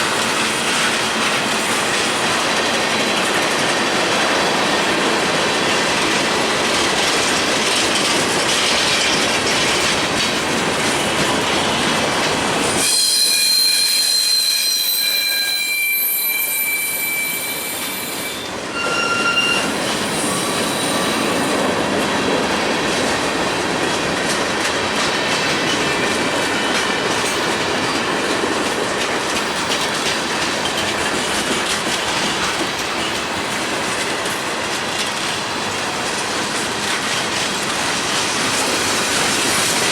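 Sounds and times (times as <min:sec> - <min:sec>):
train wheels rumbling on rails: 0:00.0 - 0:39.9
high piercing wheel squeal: 0:12.8 - 0:21.5.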